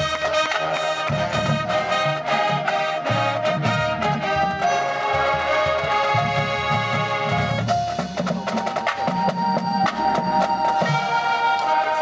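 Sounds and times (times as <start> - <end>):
brass sustained chords: 0.0 - 8.0
low brass: 0.0 - 12.0
percussion strikes: 0.0 - 12.0.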